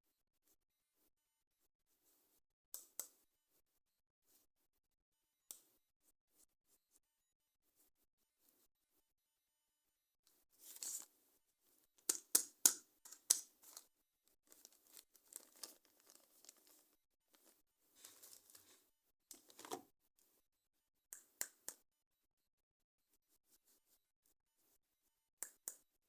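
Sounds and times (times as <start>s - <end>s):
packaging ripping and crinkling: 14.5s - 16.8s, 18.0s - 18.8s.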